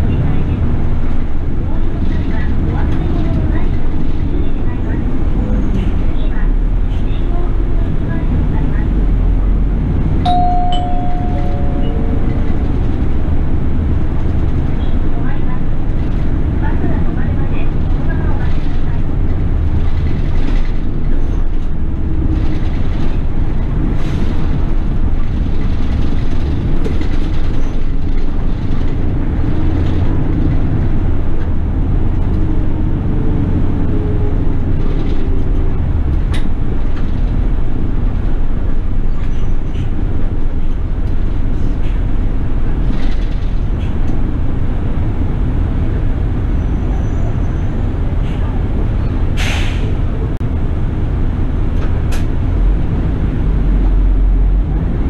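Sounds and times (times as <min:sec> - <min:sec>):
bus engine running: 0:00.0 - 0:55.0.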